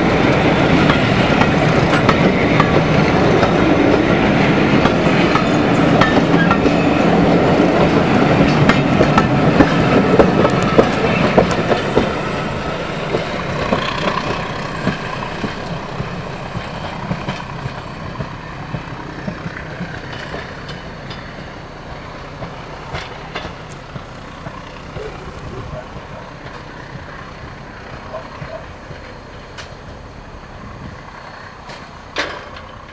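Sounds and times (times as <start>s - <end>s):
train wheels clicking on rail joints: 0.0s - 32.9s.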